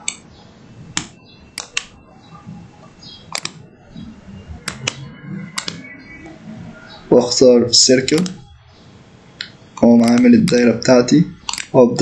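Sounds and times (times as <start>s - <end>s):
computer mouse clicking: 1.0s - 2.0s, 3.3s - 3.6s, 4.6s - 5.0s, 5.6s - 5.9s, 8.0s - 8.4s, 9.4s - 10.8s, 11.4s - 11.8s.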